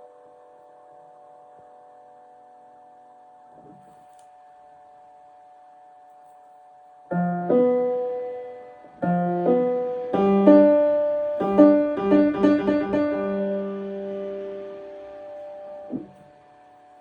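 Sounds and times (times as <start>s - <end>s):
piano notes and chords: 7.1s - 17.0s.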